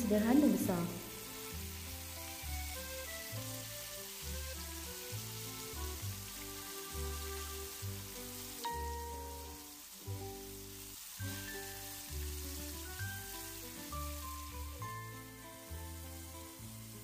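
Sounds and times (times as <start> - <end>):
squid frying in hot oil: 0.0 - 17.0.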